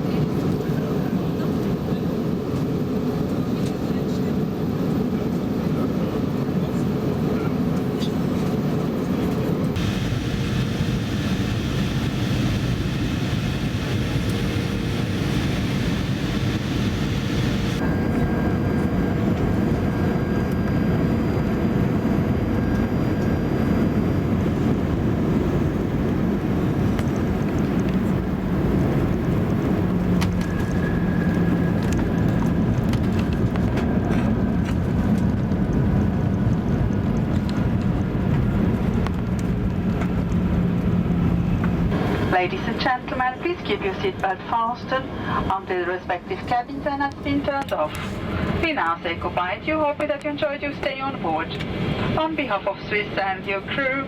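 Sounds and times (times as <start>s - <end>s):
jet engine cabin rumble: 0.0s - 54.0s.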